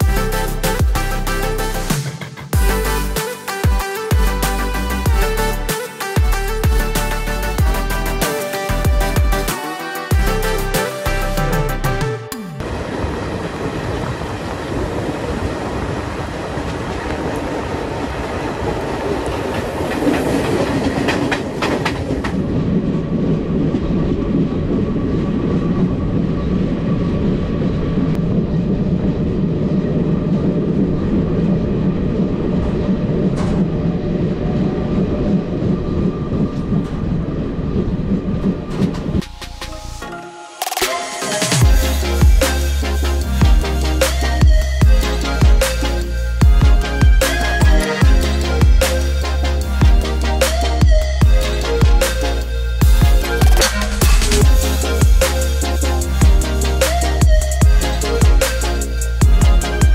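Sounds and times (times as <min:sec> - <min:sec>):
train wheels running on track: 0:12.6 - 0:39.9.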